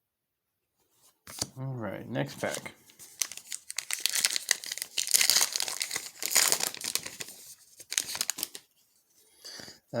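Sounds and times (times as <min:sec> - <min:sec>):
wrapper tearing and crinkling: 0:03.0 - 0:08.7.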